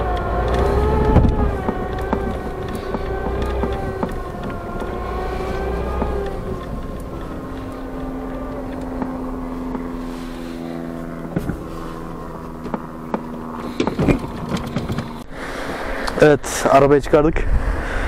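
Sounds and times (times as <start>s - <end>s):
knocks and clatter: 0.0s - 9.9s, 12.4s - 15.2s
car engine running: 0.0s - 16.1s.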